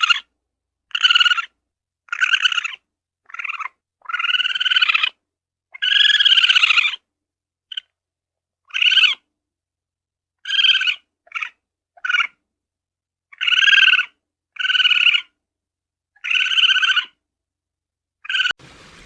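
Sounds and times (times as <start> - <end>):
ferret calling: 0.9 - 1.5, 2.1 - 7.0, 8.7 - 9.2, 10.4 - 12.4, 13.3 - 15.3.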